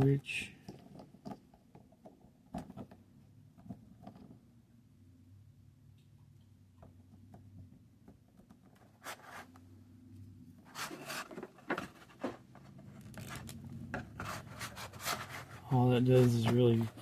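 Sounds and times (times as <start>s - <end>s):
plastic rubbing and scraping: 8.4s - 9.7s, 10.6s - 17.0s.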